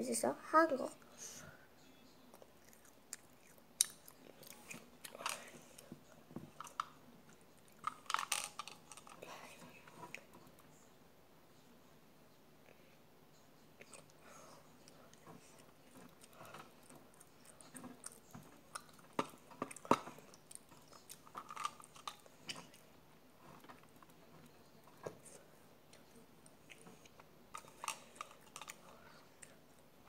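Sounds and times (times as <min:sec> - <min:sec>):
person chewing snack food: 0:02.3 - 0:05.9, 0:14.8 - 0:29.8.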